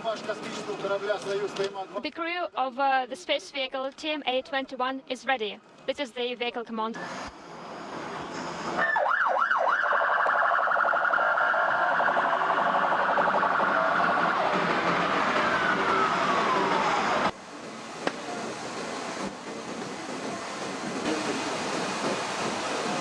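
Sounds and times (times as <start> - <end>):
vehicle sirens wailing: 8.1 - 18.5.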